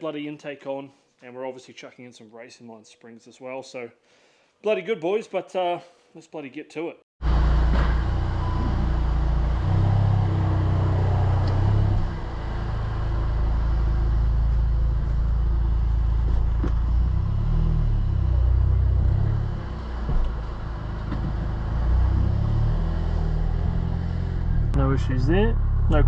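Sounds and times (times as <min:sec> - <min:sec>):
car engine and road rumble: 0:07.2 - 0:26.0.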